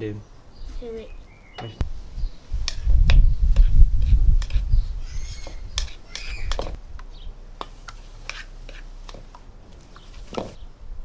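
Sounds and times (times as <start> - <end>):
hands mixing powder in a bowl: 3.5 - 6.8, 7.6 - 10.6
short squeaks: 5.1 - 6.7.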